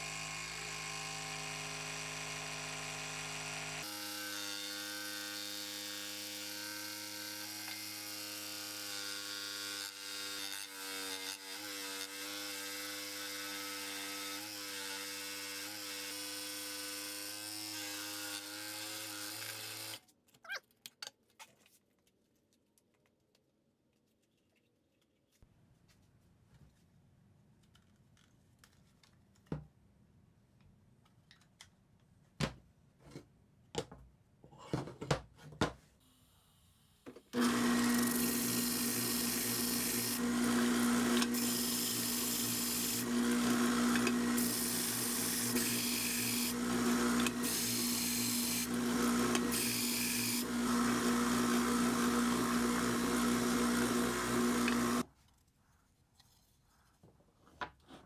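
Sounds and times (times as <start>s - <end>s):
woodworking power tool humming: 0.0s - 20.0s, 37.4s - 55.1s.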